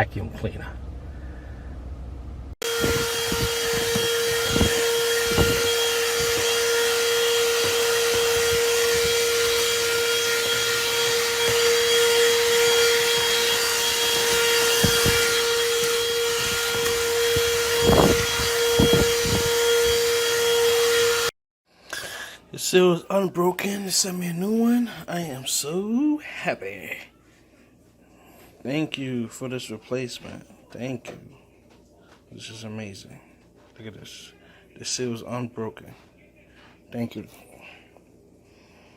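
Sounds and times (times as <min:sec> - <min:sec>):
handheld vacuum motor whine: 0:02.6 - 0:21.3.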